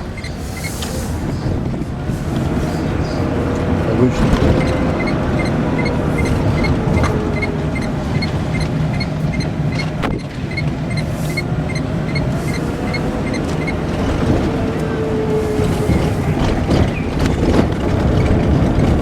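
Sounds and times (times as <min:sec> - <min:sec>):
electric car road and motor noise: 0:00.0 - 0:19.0
light regular ticking: 0:04.6 - 0:13.8.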